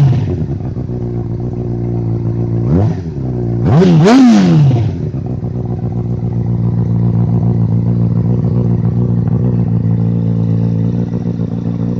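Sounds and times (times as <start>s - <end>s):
motorcycle engine idling: 0.0s - 11.9s.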